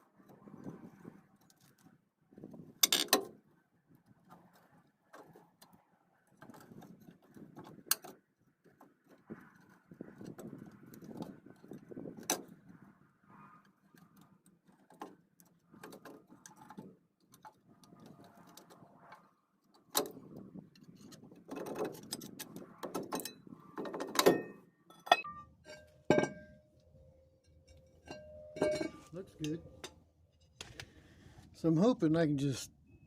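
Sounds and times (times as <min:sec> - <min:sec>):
tools and brake parts clinking: 0:19.9 - 0:30.7
ringing metallic clanks: 0:24.2 - 0:30.6.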